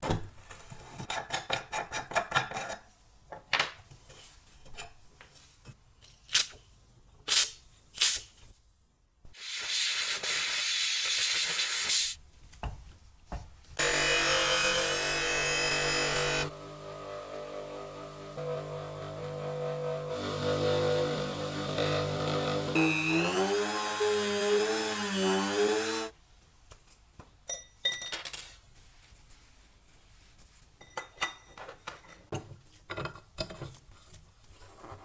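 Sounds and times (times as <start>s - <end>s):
power tool running: 13.8s - 26.1s.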